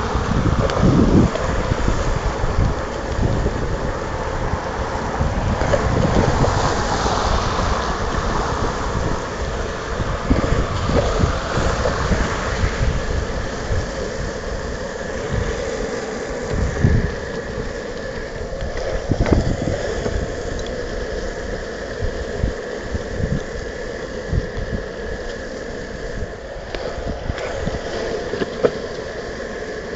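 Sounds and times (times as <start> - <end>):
wheels rolling on wet pavement: 0.0 - 29.9
wind buffeting microphone: 0.0 - 29.9.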